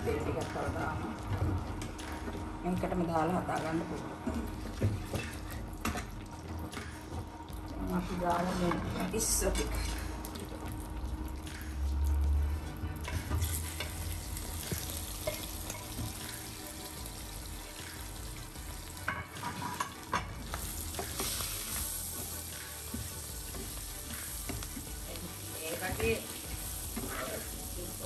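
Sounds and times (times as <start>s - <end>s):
prawns sizzling in a frying pan: 13.1s - 28.0s.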